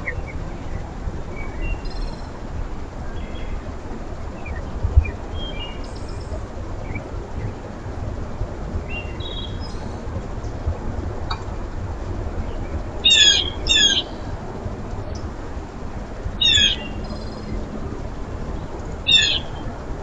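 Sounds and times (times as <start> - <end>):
small birds chirping: 0.0 - 2.4, 8.8 - 10.2, 12.4 - 14.3, 18.5 - 19.8
steady low rumble: 0.0 - 20.0.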